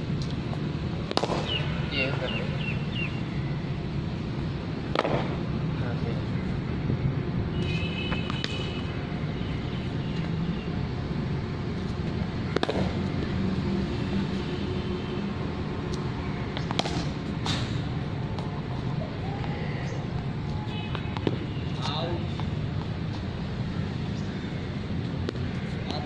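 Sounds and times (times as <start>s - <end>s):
cricket ball struck by bat: 1.0s - 1.6s, 4.9s - 5.4s, 12.5s - 13.0s.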